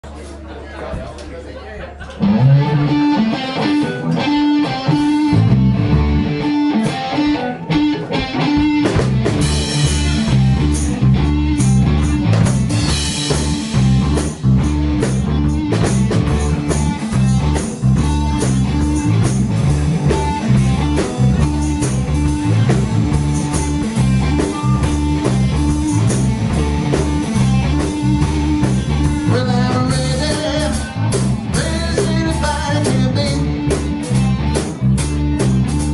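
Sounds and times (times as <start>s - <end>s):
bass guitar: 1.8s - 35.9s
electric guitar: 2.1s - 35.9s
drum kit: 2.2s - 35.9s.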